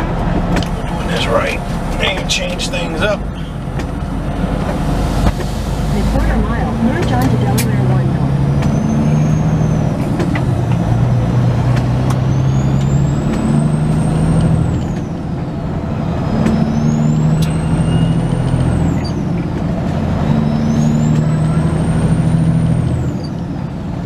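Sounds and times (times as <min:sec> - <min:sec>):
windshield wipers whining: 0:00.0 - 0:15.3
truck diesel engine running: 0:00.0 - 0:24.0.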